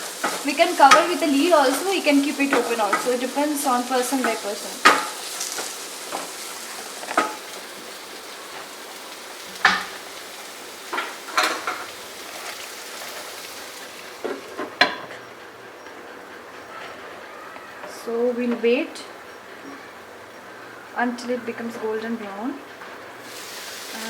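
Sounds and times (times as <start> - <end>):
onions sizzling in oil: 0.0 - 15.3, 19.3 - 24.0
spatula scraping a pan: 0.1 - 15.1.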